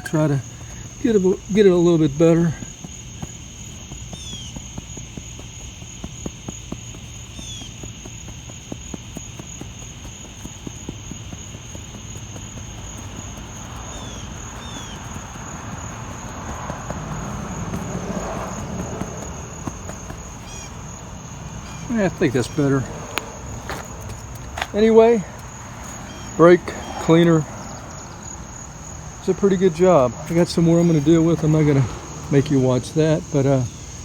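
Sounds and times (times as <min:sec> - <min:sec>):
insects trilling: 0:00.0 - 0:34.0
bird chirps: 0:02.6 - 0:04.9, 0:07.2 - 0:07.9, 0:12.1 - 0:34.0
rough rushing noise: 0:12.8 - 0:34.0.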